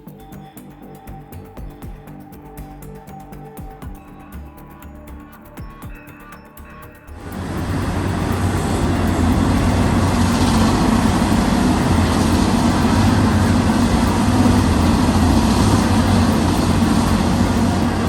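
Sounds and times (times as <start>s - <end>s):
diesel engines rumbling: 7.2s - 18.0s.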